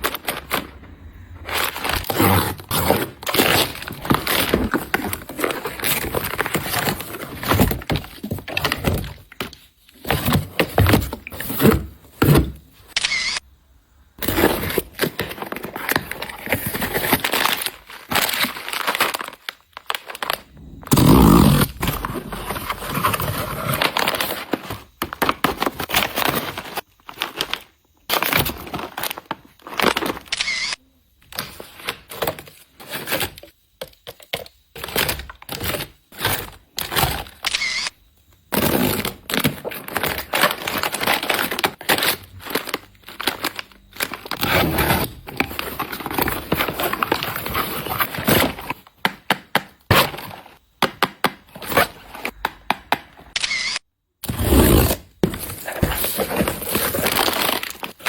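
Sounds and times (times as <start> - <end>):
plastic wrappers crinkling: 14.4 - 20.5, 38.8 - 48.8, 55.2 - 58.0.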